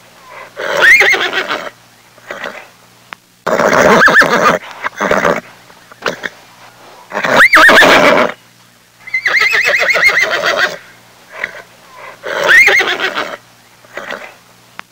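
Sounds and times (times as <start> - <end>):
horse neighing: 0.3 - 2.7, 3.5 - 5.4, 7.1 - 8.4, 9.1 - 14.4.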